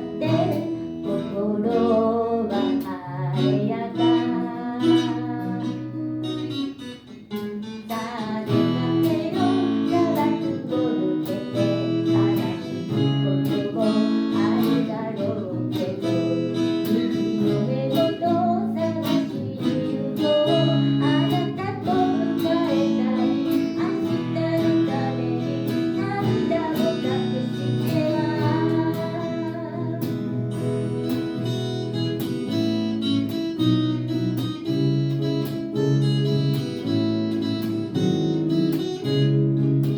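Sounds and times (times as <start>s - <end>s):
person singing: 0.0s - 6.0s, 7.8s - 30.8s
acoustic guitar strumming: 0.0s - 39.9s.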